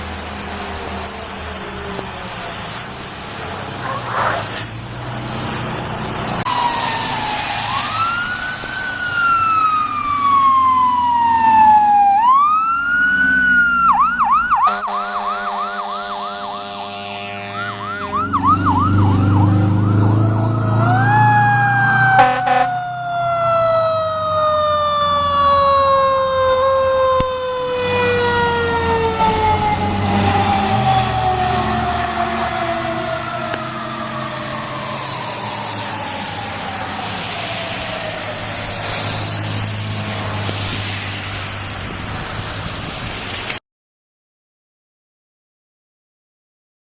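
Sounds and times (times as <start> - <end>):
fire truck siren: 0.0 - 43.4
heavy diesel engine passing: 0.0 - 43.5
horn blast: 14.6 - 19.3, 22.1 - 22.8.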